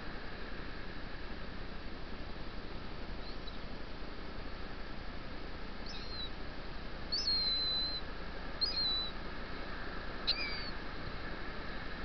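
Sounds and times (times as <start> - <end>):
high whistled bird calls: 5.8 - 6.3, 7.1 - 9.2, 10.2 - 10.8.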